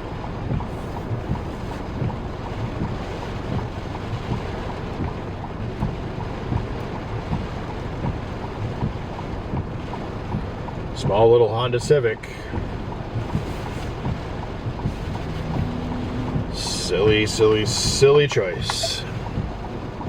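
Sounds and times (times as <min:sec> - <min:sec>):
car driving rumble: 0:00.0 - 0:20.0
wind buffeting microphone: 0:12.5 - 0:20.0.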